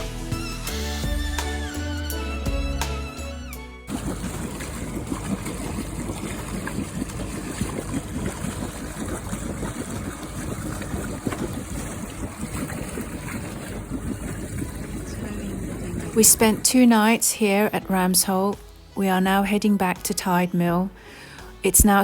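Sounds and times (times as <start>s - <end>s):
water lapping around a boat: 3.9s - 17.2s.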